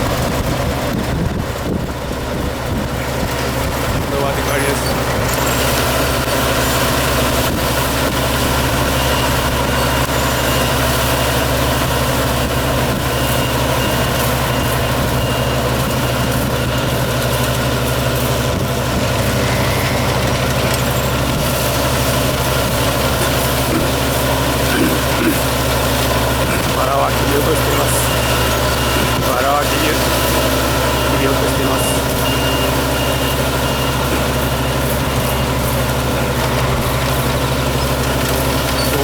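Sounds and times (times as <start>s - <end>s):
harvester engine droning: 0.0s - 39.0s.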